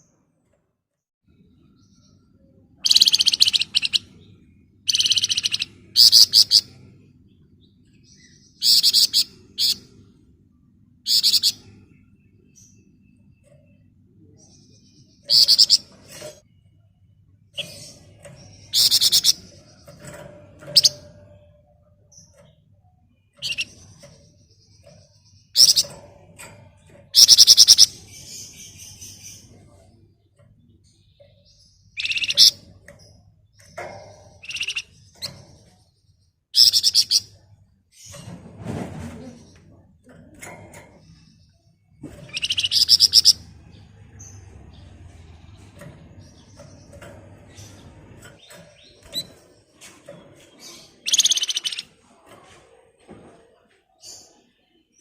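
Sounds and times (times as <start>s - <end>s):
songbird chattering trills: 2.8s - 4.3s, 4.9s - 6.8s, 8.1s - 9.9s, 11.1s - 11.7s, 15.2s - 15.9s, 18.6s - 19.5s, 25.3s - 25.9s, 27.2s - 29.6s, 31.6s - 32.7s, 34.3s - 35.2s, 36.6s - 37.4s, 42.2s - 43.4s, 50.4s - 52.0s
songbird shrill trilling chatter: 51.1s - 51.8s.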